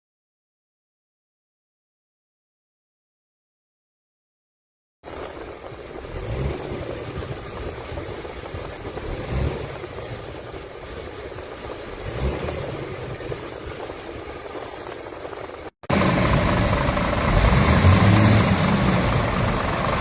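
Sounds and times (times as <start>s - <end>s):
diesel truck engine running: 5.1s - 20.0s.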